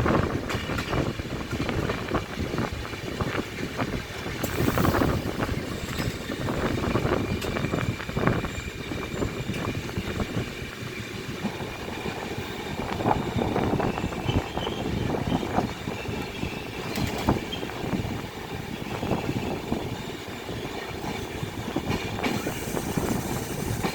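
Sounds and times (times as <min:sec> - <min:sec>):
train knocks and clatter: 0:00.0 - 0:23.9
train wheels rumbling: 0:00.0 - 0:23.9.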